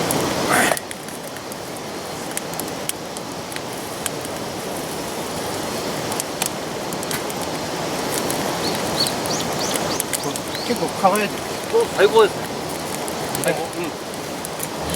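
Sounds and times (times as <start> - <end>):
wood fire crackling in a stove: 0.0 - 14.9.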